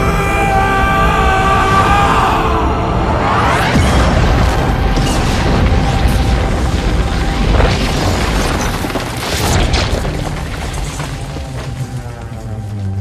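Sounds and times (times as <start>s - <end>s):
orchestral score: 0.0s - 8.4s
deep booms and rumbling: 2.9s - 12.3s.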